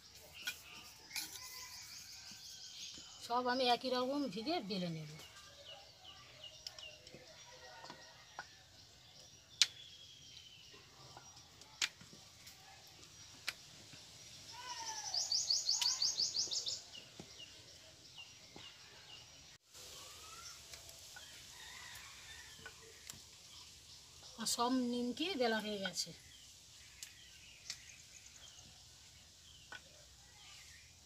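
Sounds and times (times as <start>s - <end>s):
birds chirping: 9.0s - 20.8s.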